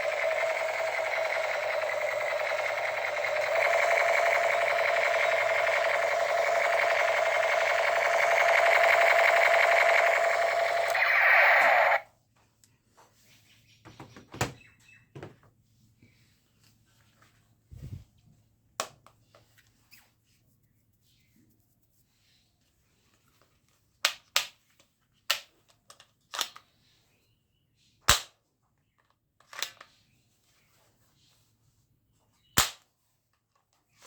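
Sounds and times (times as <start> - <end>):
toy gun electronic buzzing rattle: 0.0 - 12.0.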